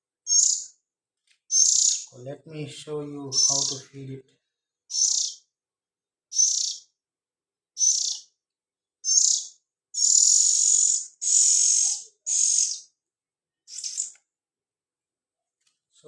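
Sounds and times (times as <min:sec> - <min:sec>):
magpie chick begging calls: 0:00.3 - 0:00.7, 0:01.5 - 0:02.1, 0:04.9 - 0:05.5, 0:06.3 - 0:06.9, 0:07.8 - 0:08.3, 0:09.0 - 0:12.9.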